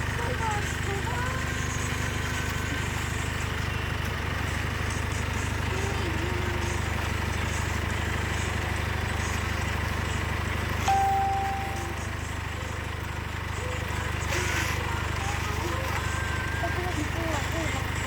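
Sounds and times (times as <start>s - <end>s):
small engine humming: 0.0s - 18.0s
high steady tone: 10.8s - 12.6s.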